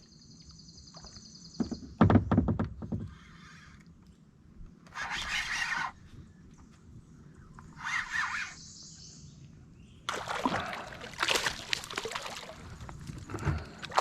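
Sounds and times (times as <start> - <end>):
fish thrashing at water surface: 10.1 - 14.0
water splashing and dripping: 10.1 - 14.0.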